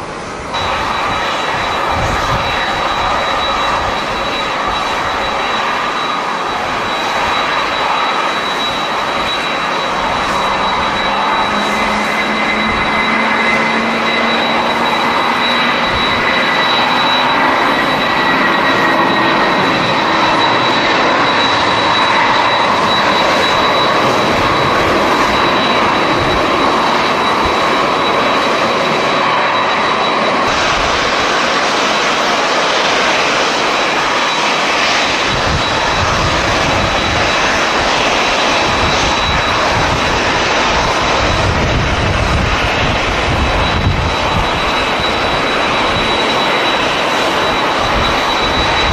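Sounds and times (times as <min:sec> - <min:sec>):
jet engines roaring: 0:00.0 - 0:48.9
wind buffeting microphone: 0:00.3 - 0:29.4, 0:34.8 - 0:48.9.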